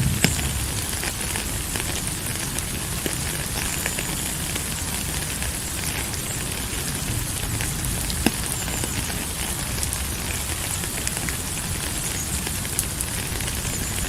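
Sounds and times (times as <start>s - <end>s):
rain falling: 0.0s - 14.0s
raindrop ticks: 0.0s - 14.0s.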